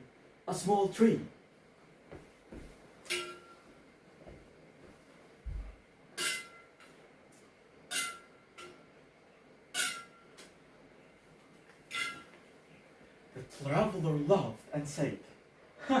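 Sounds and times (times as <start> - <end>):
metal tool striking ground: 6.2 - 6.6.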